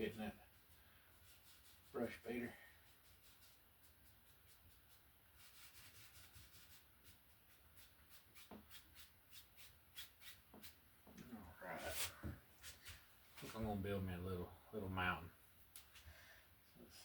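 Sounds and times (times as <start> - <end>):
faint scratchy strokes: 0.0 - 10.8, 11.4 - 13.8.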